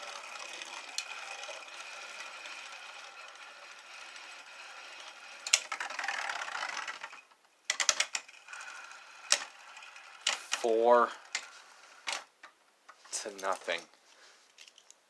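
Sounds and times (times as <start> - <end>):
rattling scrape: 0.0 - 7.3, 8.1 - 12.3
spinning tops whirring: 0.0 - 12.4.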